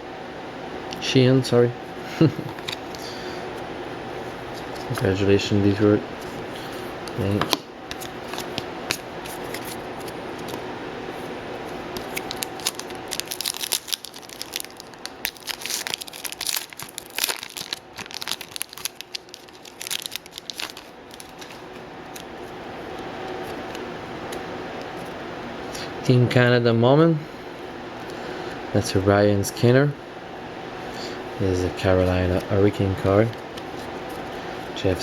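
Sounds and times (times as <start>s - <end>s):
wrapper tearing and crinkling: 12.0s - 22.3s.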